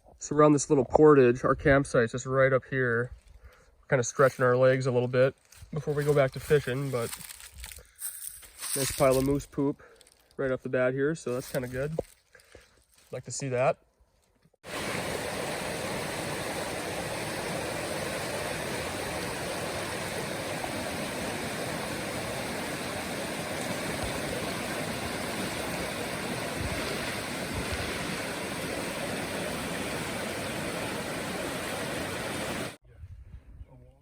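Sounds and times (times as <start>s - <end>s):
river rapids rushing: 14.7s - 32.8s.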